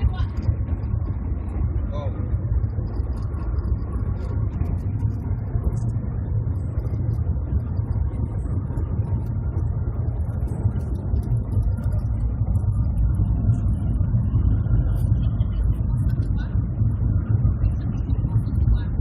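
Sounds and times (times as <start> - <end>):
train cabin low rumble: 0.0 - 19.0.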